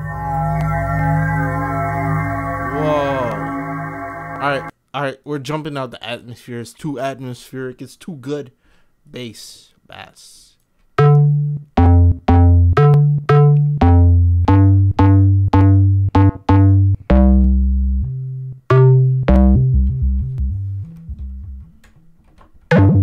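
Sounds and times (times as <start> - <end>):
synthesizer bass notes: 0.0 - 4.7, 11.0 - 21.9, 22.7 - 23.0.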